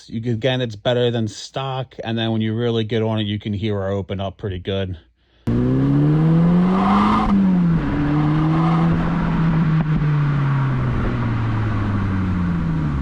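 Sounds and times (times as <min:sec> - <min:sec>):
car engine accelerating hard: 0:05.5 - 0:13.0.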